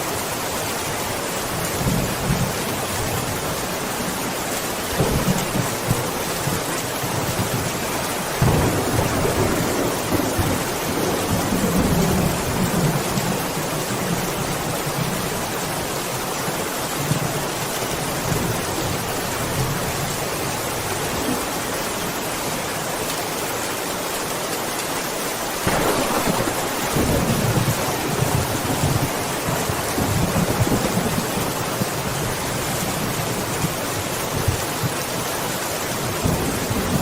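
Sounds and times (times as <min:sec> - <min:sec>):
heavy rain: 0:00.0 - 0:37.0
rolling thunder: 0:07.2 - 0:14.4, 0:25.6 - 0:33.2.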